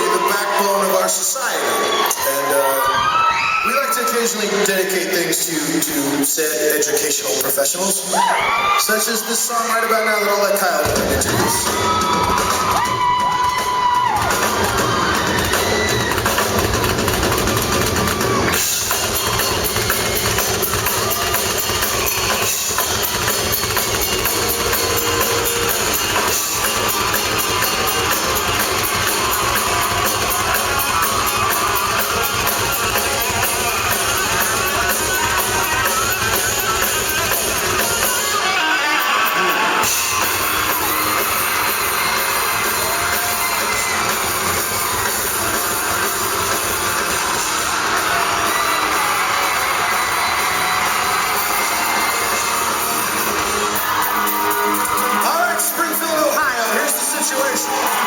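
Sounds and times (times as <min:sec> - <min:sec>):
drum kit: 0:10.8 - 0:38.4, 0:39.5 - 0:58.0.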